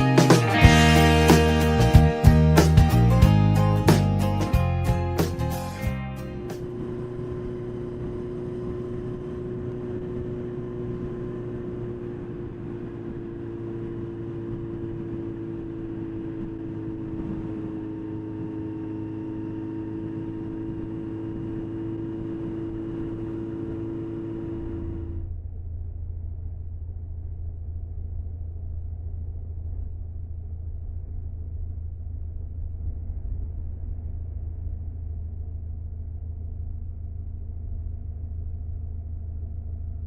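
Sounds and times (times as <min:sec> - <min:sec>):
motorcycle engine running: 0:00.0 - 0:28.3
low hum: 0:00.0 - 0:40.0
wind and road noise: 0:06.3 - 0:25.3.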